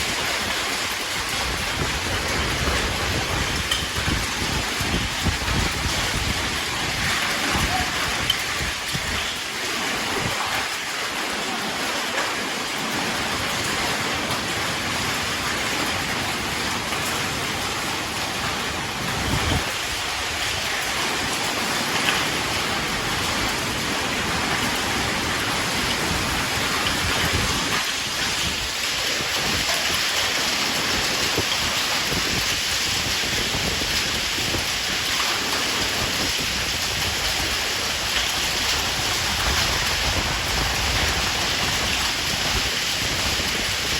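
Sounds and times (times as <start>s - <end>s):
low thunder rumbles: 0.0s - 10.7s
rain falling: 0.0s - 43.9s.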